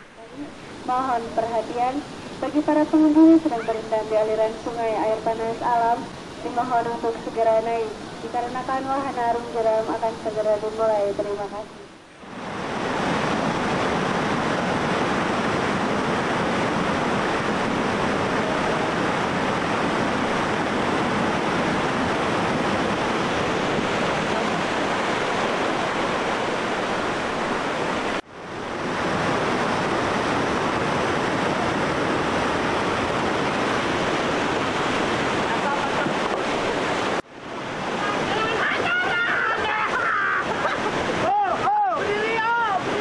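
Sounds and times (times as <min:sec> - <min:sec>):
river rapids rushing over rocks: 0:12.4 - 0:43.0.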